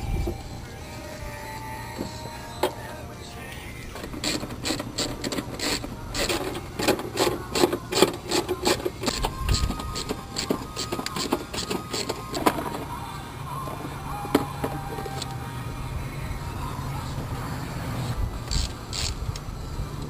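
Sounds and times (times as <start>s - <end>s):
ratchet and wrenches on metal bolts: 4.0s - 12.9s.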